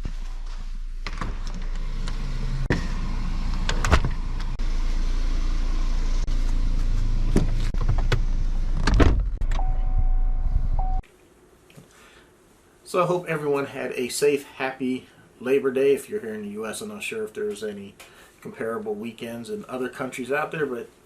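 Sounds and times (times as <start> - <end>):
road and engine rumble: 0.0 - 11.0
steady tone: 9.4 - 11.0.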